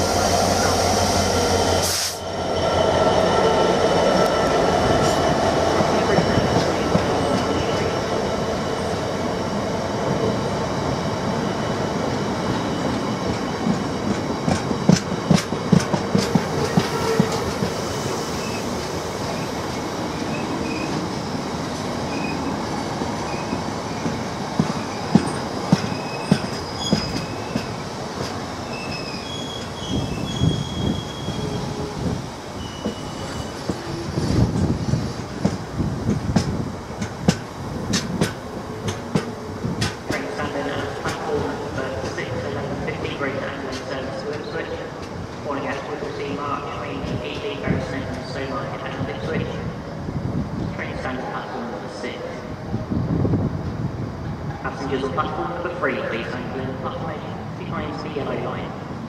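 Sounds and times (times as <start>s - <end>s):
diesel locomotive engine: 0.0s - 59.0s
high wheel squeals: 22.1s - 22.5s, 24.8s - 27.8s, 28.6s - 32.0s, 32.6s - 34.4s.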